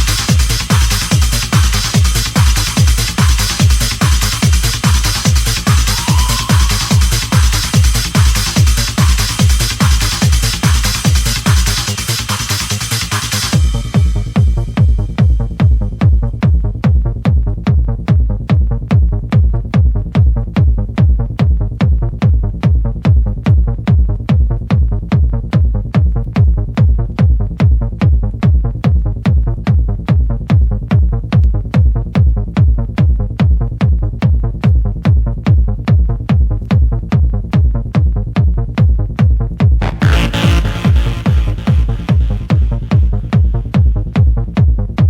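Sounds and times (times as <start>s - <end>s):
electronic dance music: 0.0s - 16.6s, 38.0s - 45.0s.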